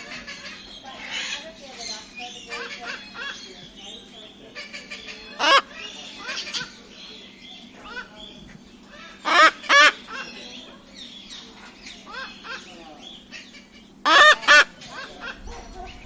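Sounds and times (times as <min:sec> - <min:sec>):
faint chattering calls: 0:00.0 - 0:16.0
cockatoo honk-like calls: 0:04.5 - 0:06.9, 0:08.9 - 0:10.8, 0:12.0 - 0:16.0.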